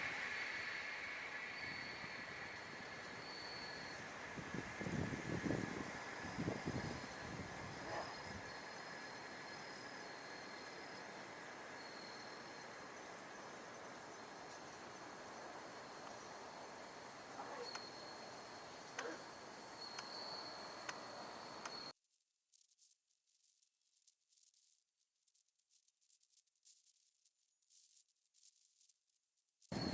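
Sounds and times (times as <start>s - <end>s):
insect chirps: 0.0s - 21.9s
insect trill: 0.0s - 21.9s
light hiss: 0.0s - 21.9s
faint clicks: 19.9s - 20.1s, 20.8s - 21.0s, 21.6s - 21.9s.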